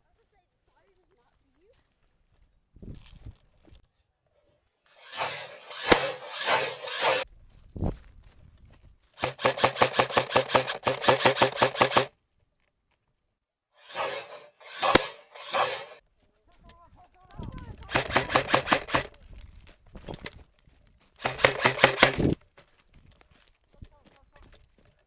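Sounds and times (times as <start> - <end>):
rapid automatic airsoft fire: 5.0 - 7.2, 9.2 - 12.1, 13.9 - 16.0, 17.8 - 19.2, 21.2 - 22.4
steady motor hum: 13.9 - 16.0.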